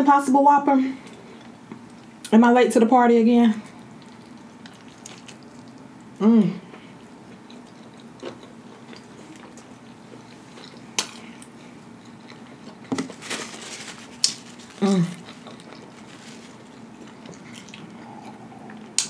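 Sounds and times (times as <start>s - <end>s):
low steady hum: 0.0s - 19.0s
person chewing with wet smacks: 3.9s - 12.9s, 14.2s - 19.0s
person humming: 6.2s - 6.7s, 14.8s - 15.2s.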